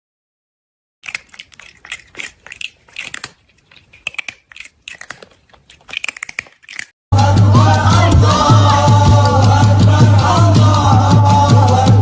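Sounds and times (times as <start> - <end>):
crunchy chewing: 1.0 - 7.0.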